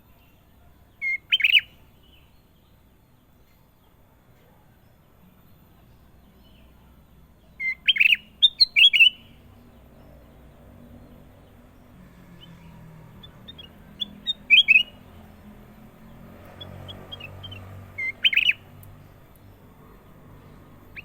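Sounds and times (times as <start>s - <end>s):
bulbul chirping: 7.6s - 9.4s, 12.4s - 15.4s, 16.0s - 19.6s.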